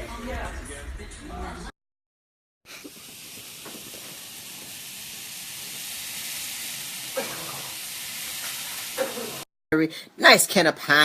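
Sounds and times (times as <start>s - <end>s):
heavy rain hissing: 2.7s - 9.5s.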